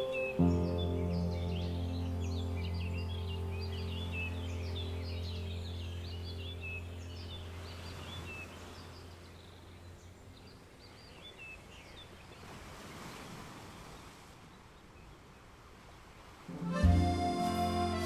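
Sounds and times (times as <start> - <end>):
low music drone: 0.0 - 7.2, 16.5 - 18.0
small birds chirping: 0.0 - 12.5
soft outdoor hiss: 0.0 - 18.0.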